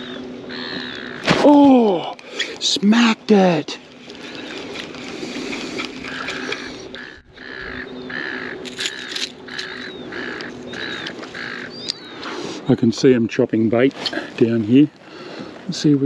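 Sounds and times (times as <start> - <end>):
bird calling in harsh notes: 0.0 - 3.2, 3.9 - 12.9.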